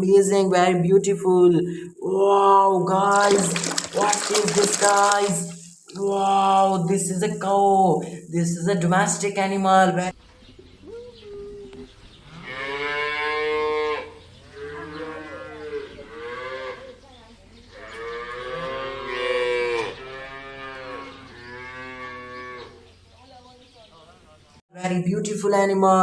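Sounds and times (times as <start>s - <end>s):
cow mooing: 12.4s - 16.8s, 17.9s - 22.8s.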